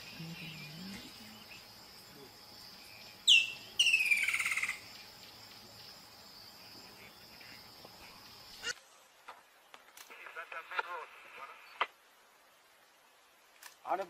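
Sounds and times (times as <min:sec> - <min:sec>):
high insect drone: 0:00.0 - 0:08.8
bird calling: 0:02.7 - 0:06.0.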